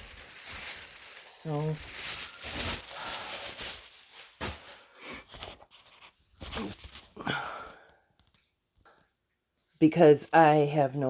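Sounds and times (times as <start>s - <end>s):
cardboard and plastic rustling: 0.0s - 7.2s.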